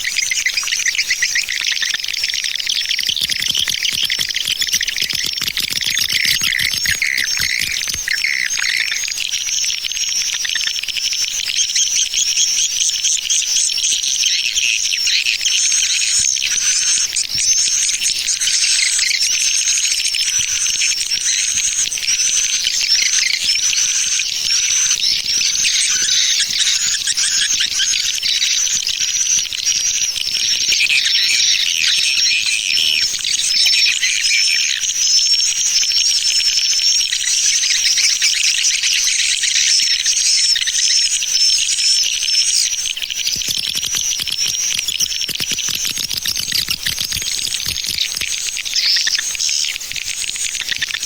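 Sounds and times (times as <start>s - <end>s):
rising whistled chirp: 0.0s - 9.2s
swiftlet chirps chatter: 0.0s - 9.2s, 15.2s - 51.0s
twittering of swiftlets: 2.6s - 8.9s, 42.4s - 49.2s.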